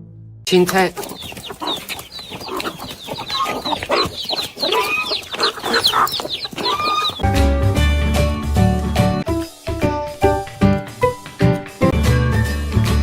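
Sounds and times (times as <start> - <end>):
chickens clucking: 0.7 - 7.3.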